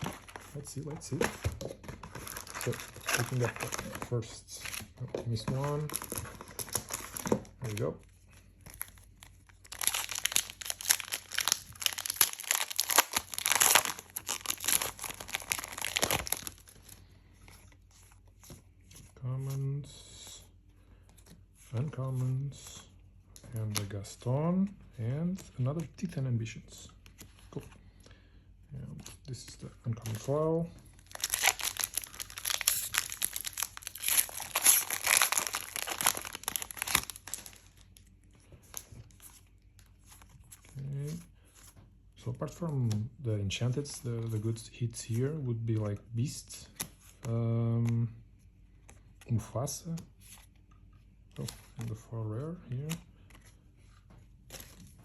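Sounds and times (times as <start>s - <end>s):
foil wrapper tearing and crinkling: 2.2s - 3.9s, 8.7s - 16.8s, 31.0s - 37.8s.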